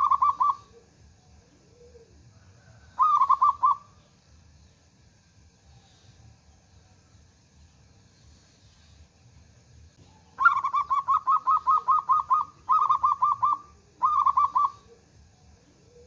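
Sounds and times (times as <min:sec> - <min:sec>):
dove rapid staccato cooing: 0:00.0 - 0:04.0, 0:10.0 - 0:16.0.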